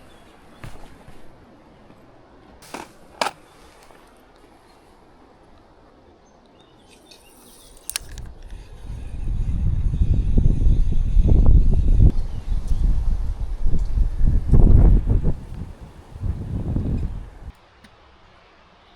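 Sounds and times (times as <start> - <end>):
wind buffeting microphone: 7.9 - 17.5.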